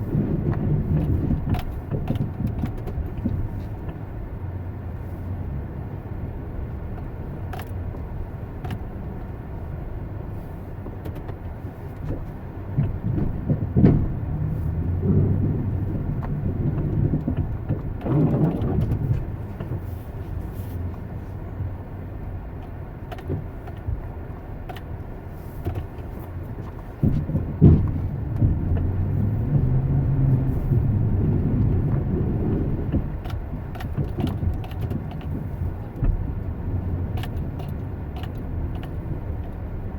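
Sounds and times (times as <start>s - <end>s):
motor vehicle rumble: 0.0s - 39.9s.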